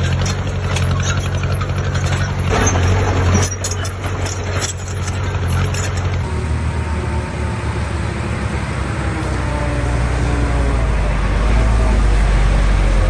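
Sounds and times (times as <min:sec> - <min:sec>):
heavy diesel engine droning: 0:00.0 - 0:13.0
rush of noise: 0:05.9 - 0:13.0.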